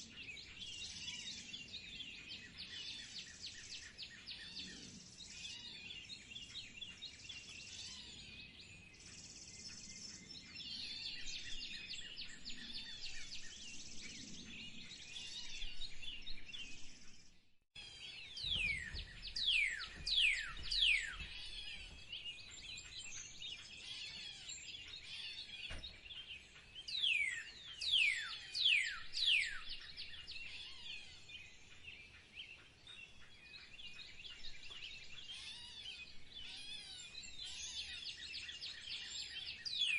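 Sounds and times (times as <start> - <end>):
small birds chirping and singing: 0.0 - 39.9
bird whistling downward notes: 18.4 - 22.0.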